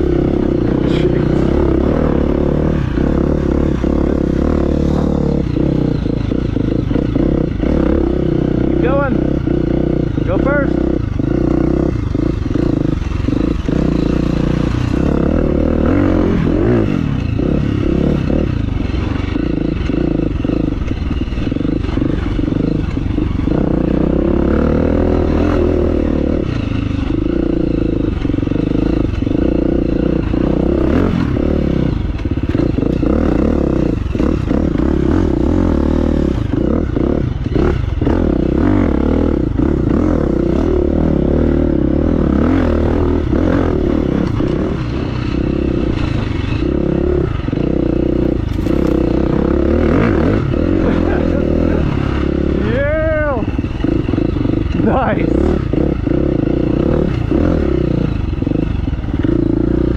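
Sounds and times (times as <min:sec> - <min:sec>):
dirt bike engine: 0:00.0 - 0:59.9
knocks from rough ground: 0:48.4 - 0:49.4.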